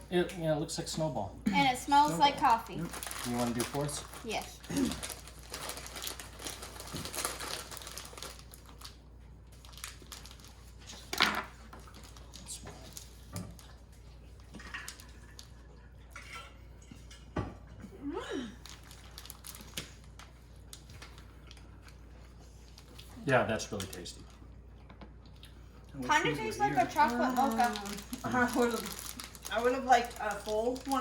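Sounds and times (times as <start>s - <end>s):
snack packaging crinkling: 2.1s - 13.8s, 18.6s - 25.6s, 26.2s - 31.0s.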